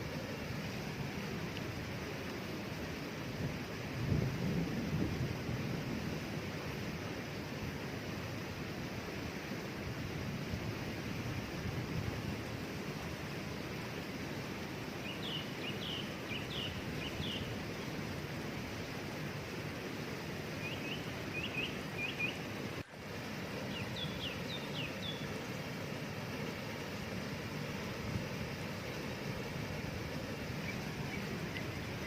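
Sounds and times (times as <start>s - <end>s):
waterfall rushing: 0.0s - 4.0s, 6.2s - 32.0s
bird chirping: 15.0s - 17.5s, 20.6s - 22.4s, 23.7s - 25.5s.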